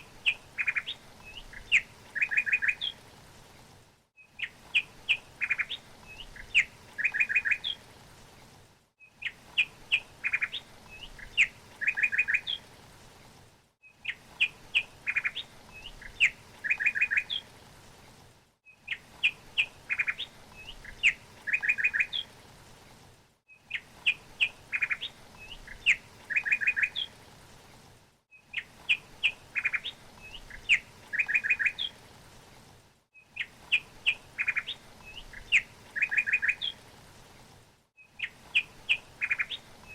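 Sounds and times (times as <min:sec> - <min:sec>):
songbird chirps and trill: 0:00.0 - 0:03.0, 0:04.2 - 0:07.8, 0:09.0 - 0:12.7, 0:13.8 - 0:17.5, 0:18.6 - 0:22.4, 0:23.5 - 0:27.2, 0:28.3 - 0:32.0, 0:33.1 - 0:36.8, 0:38.0 - 0:39.9.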